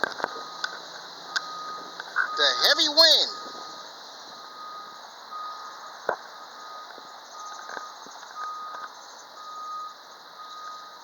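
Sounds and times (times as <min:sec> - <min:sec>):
electronic beeper short beeps: 0:01.5 - 0:03.7.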